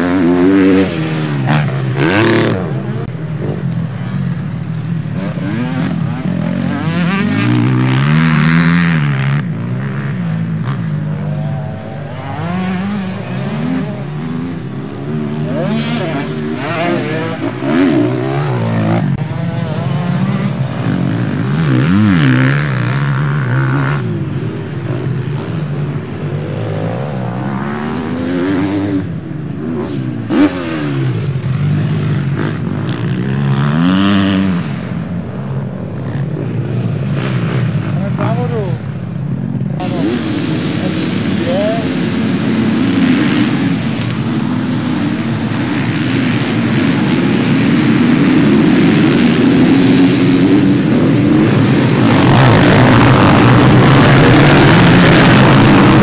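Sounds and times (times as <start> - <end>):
motocross bikes revving: 0.0 - 56.0.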